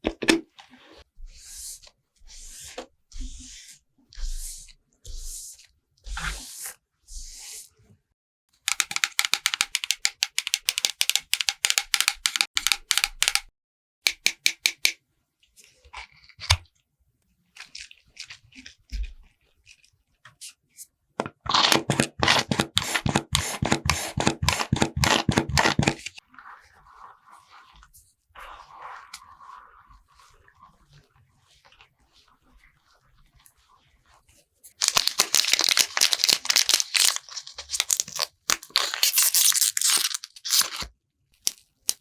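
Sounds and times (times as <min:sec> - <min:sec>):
makeup applicator tapping: 0:08.7 - 0:13.5.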